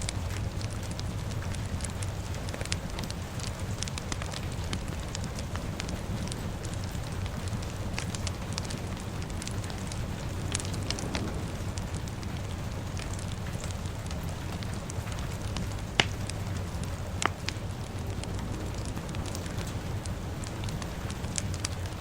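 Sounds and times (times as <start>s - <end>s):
fire crackling: 0.0s - 22.0s
low even rumble: 0.0s - 22.0s
sharp fire pops: 0.0s - 22.0s.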